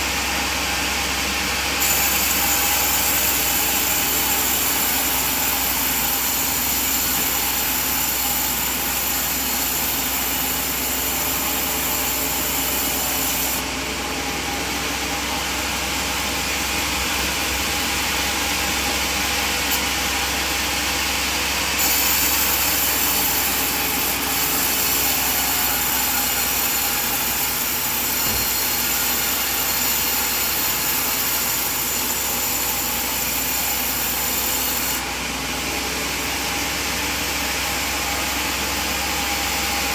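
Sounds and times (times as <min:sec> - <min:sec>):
mill motor drone: 0:00.0 - 0:39.9
band saw blade rasping through log: 0:01.8 - 0:13.7, 0:21.7 - 0:35.1.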